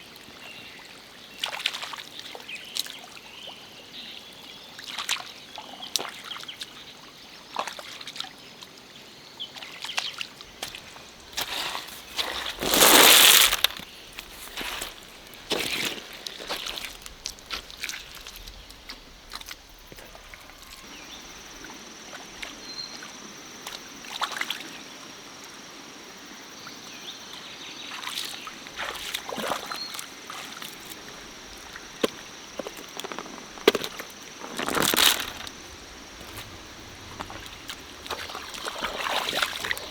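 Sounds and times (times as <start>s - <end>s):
stream water splashing: 10.4s - 24.8s, 27.9s - 39.9s.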